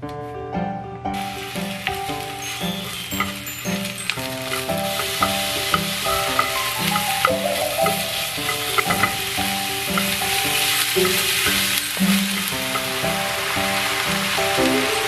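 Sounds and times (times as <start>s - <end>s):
mushrooms sizzling in a pan: 1.2s - 15.0s
utensil clicking against pan: 1.8s - 14.6s.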